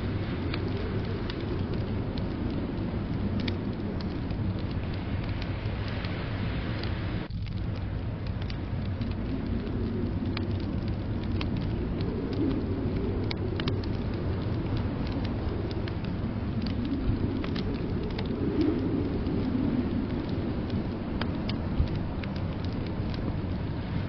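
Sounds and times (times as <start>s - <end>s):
blizzard wind rumble: 0.0s - 24.0s
wood fire crackling: 0.0s - 24.0s.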